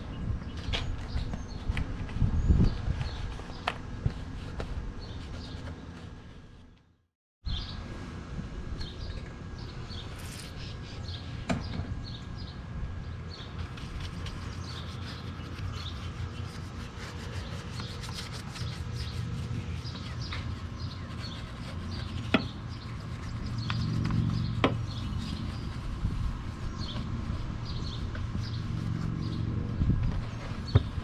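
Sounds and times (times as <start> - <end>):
brush scrubbing and towel wiping: 3.0 - 6.6, 13.5 - 29.7
birds chirping: 8.8 - 25.9, 26.6 - 31.0.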